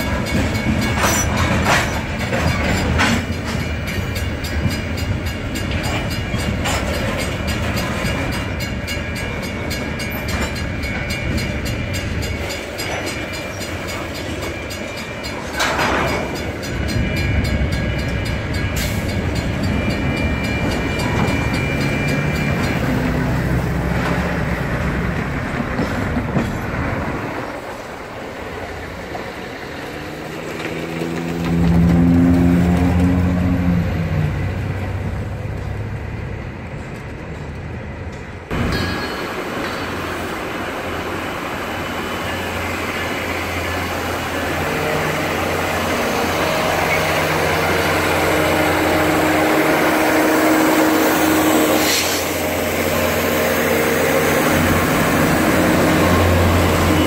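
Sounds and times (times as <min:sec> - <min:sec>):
freight cars rolling on jointed track: 0:00.0 - 0:11.4, 0:12.3 - 0:17.0, 0:29.0 - 0:41.1
diesel locomotive drone: 0:00.0 - 0:57.0.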